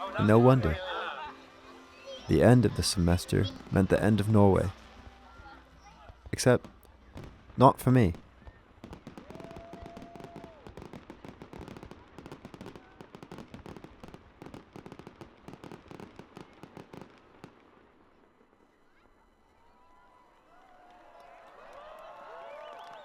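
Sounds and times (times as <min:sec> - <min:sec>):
rapid crackling pops: 0:03.4 - 0:17.8.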